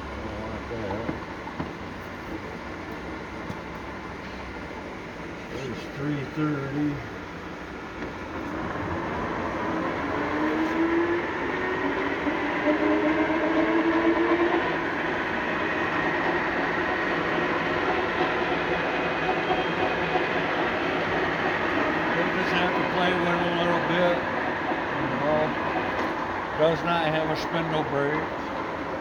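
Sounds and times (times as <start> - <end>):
lathe geared drive whining: 5.5 - 29.0.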